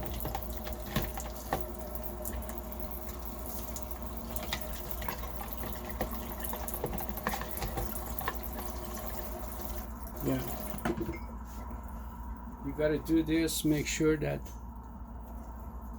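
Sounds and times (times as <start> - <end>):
water sloshing and dripping: 0.0 - 11.3.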